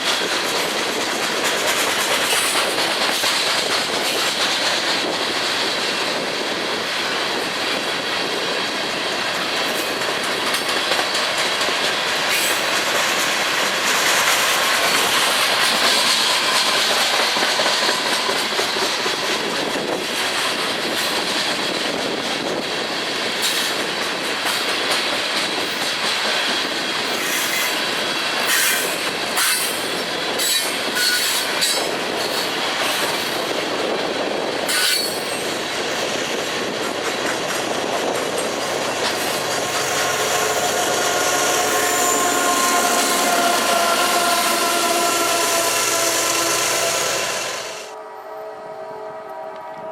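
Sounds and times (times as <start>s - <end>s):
wheels clicking over rail joints: 0.0s - 45.0s
train wheels rumbling on track: 0.0s - 48.0s
wheel flanges squealing: 34.7s - 35.4s.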